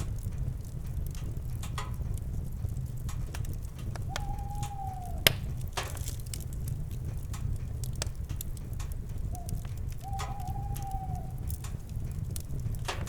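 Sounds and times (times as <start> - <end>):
campfire crackling and popping: 0.0 - 13.0
low rumble: 0.0 - 13.0
owl hooting: 4.0 - 5.5, 9.3 - 11.5.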